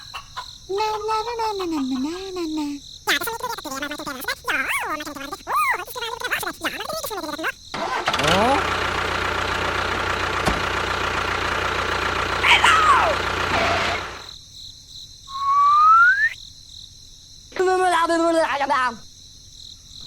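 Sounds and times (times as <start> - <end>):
motor whining: 7.8 - 14.3.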